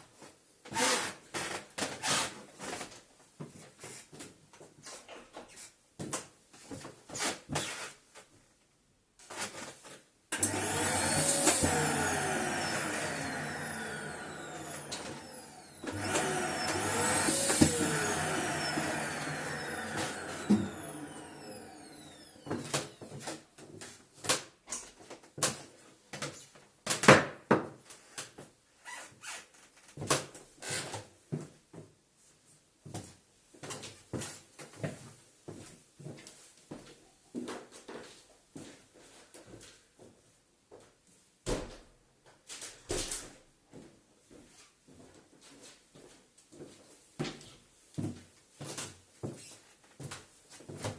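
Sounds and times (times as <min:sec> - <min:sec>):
vacuum cleaner motor: 0:10.3 - 0:23.3
vacuum cleaner switch click: 0:10.4 - 0:22.4.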